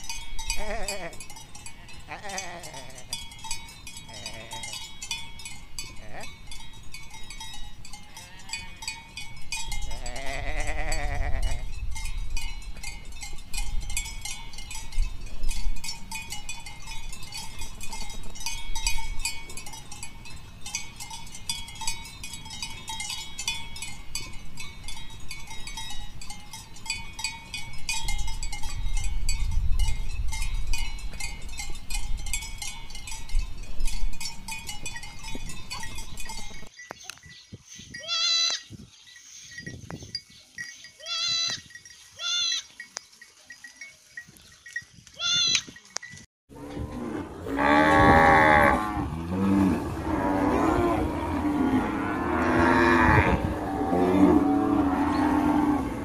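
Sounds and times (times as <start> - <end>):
high clinking and ringing: 0.0 - 46.3
sheep bleating: 0.6 - 1.2, 2.1 - 3.1, 4.1 - 4.7, 6.0 - 6.3, 9.9 - 11.7.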